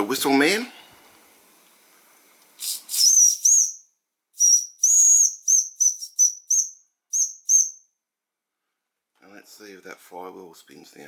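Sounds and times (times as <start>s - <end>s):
steam hissing: 1.3s - 3.6s
steam whistle toots: 2.6s - 3.8s, 4.4s - 7.8s.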